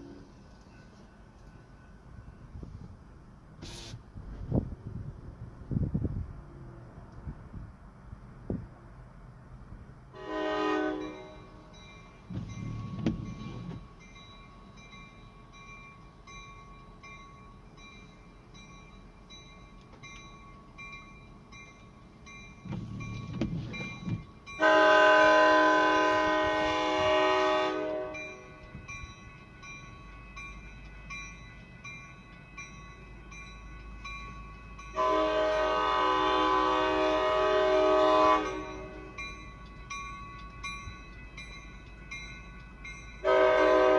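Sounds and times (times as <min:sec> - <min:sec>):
crossing bell ringing: 0:00.0 - 0:02.6, 0:10.2 - 0:43.9
locomotive air horn blasts: 0:10.2 - 0:11.8, 0:24.6 - 0:28.8, 0:34.9 - 0:39.2, 0:43.2 - 0:43.9.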